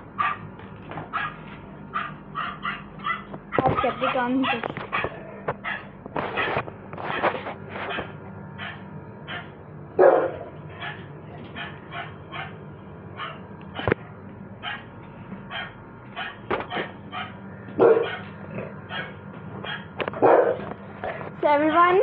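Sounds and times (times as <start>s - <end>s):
dog barking: 0.2s - 0.4s, 1.1s - 7.2s, 7.9s - 12.6s, 13.2s - 13.9s, 14.6s - 14.9s, 15.5s - 18.3s, 18.9s - 20.7s.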